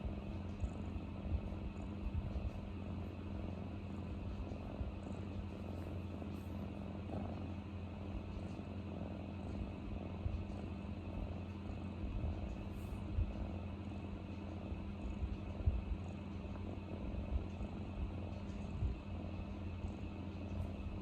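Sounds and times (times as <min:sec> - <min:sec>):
cat purring: 0:00.0 - 0:21.0.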